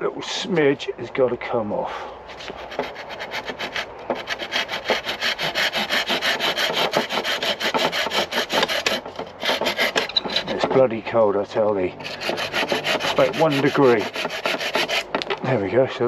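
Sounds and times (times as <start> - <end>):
hand tool rasping wood: 2.3 - 11.2, 12.0 - 15.6.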